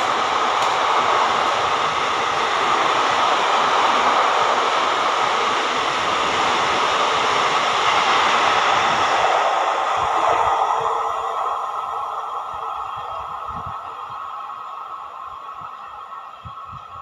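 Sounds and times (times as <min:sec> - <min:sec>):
train wheels rushing on rail: 0:00.0 - 0:17.0.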